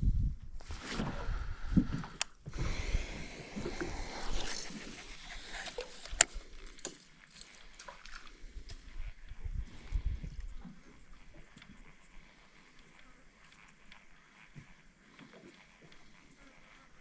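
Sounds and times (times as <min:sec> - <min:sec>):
water sloshing and scraping: 0:02.6 - 0:08.4.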